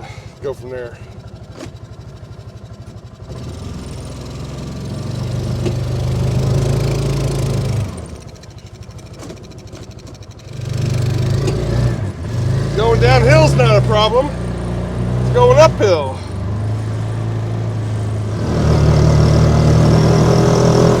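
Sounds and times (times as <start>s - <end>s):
vehicle engine revving: 3.2s - 8.3s, 10.4s - 21.0s.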